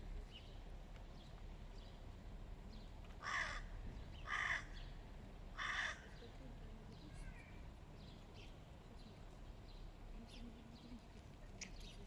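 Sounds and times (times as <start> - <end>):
crow cawing: 3.2 - 4.8, 5.6 - 6.2.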